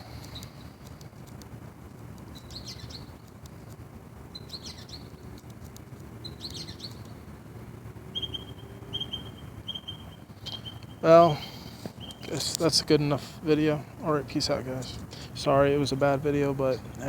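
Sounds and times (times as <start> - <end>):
birds chirping: 0.0 - 0.8, 2.2 - 3.3, 4.3 - 5.4, 6.1 - 17.0.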